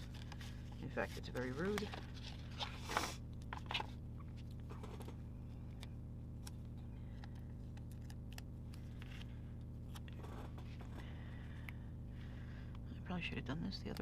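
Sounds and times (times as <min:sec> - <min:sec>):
low hum: 0:00.0 - 0:14.0
stickers and paper ticking: 0:13.6 - 0:14.0.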